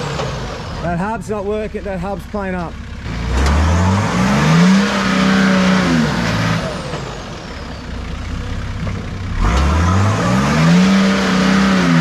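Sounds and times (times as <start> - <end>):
engine revving hard: 3.0 - 7.3, 9.3 - 12.0.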